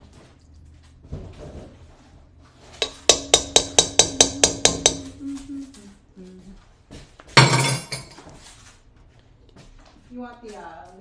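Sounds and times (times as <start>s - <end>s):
steady low tone: 3.9s - 6.6s
metal utensil clinking on bowl: 7.4s - 8.2s.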